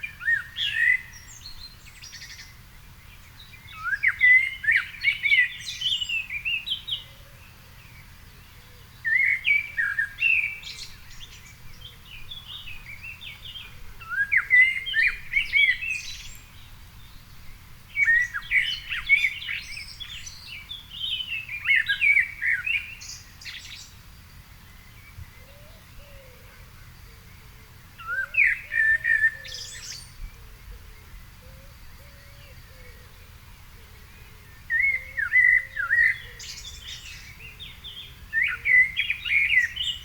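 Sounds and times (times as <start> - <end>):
songbird warbling: 8.7 - 24.0, 24.8 - 40.0.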